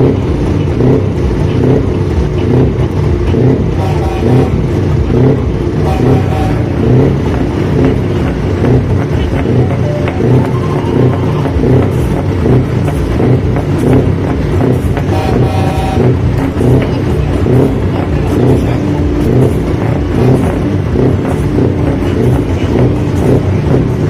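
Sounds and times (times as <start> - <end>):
truck diesel engine rumble: 0.0 - 24.0
brief higher tone: 9.7 - 11.6.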